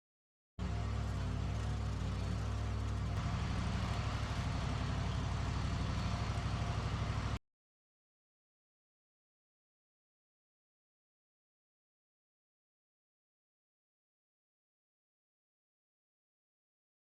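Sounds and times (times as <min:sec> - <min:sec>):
sawmill motor running: 0:00.6 - 0:07.4.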